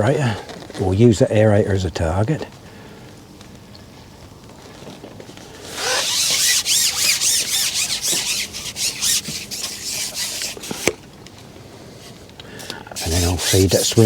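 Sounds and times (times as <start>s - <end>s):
fishing pole sections sliding and squeaking: 5.6s - 11.0s, 12.6s - 14.0s.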